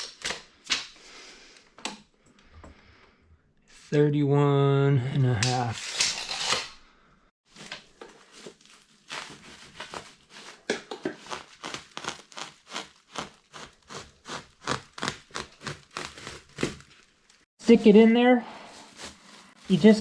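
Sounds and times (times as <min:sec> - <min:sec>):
knife sawing through insulation: 0:09.0 - 0:17.1, 0:18.6 - 0:20.0.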